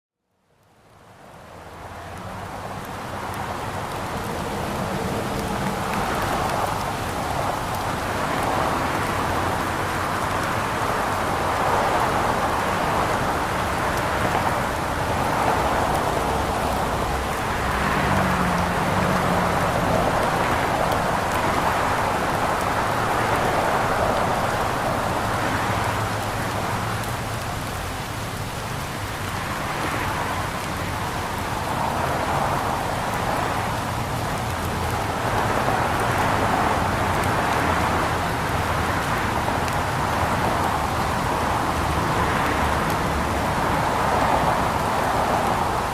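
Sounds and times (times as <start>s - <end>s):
steady rain falling: 0.2s - 45.9s.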